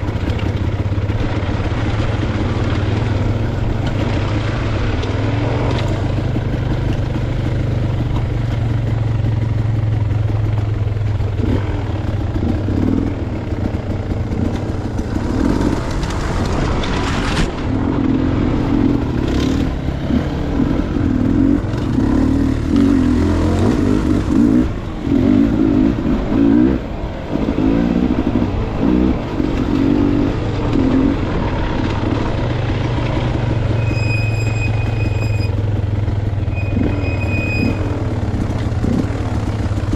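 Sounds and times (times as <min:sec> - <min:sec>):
dirt bike engine revving: 0:11.4 - 0:32.5, 0:36.5 - 0:39.9.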